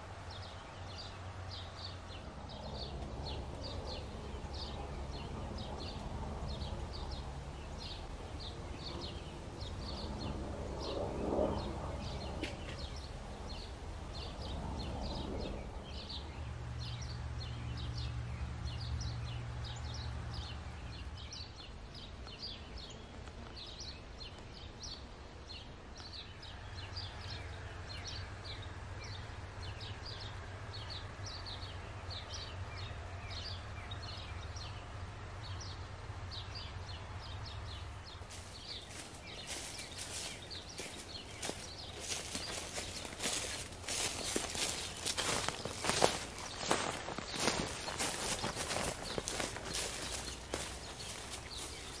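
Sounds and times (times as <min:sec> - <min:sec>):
birds chirping: 0:00.0 - 0:52.0
footsteps on forest floor: 0:38.3 - 0:52.0.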